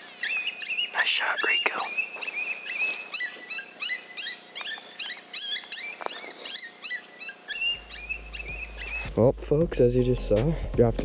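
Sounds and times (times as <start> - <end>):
coyotes yipping: 0.0 - 9.1.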